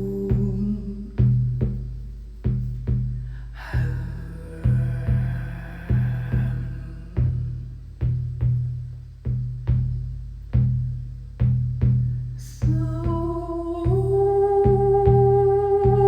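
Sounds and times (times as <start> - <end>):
humming vocal tone: 0.0 - 1.7, 3.5 - 7.8, 12.4 - 16.0
deep hand drum beating: 0.0 - 16.0.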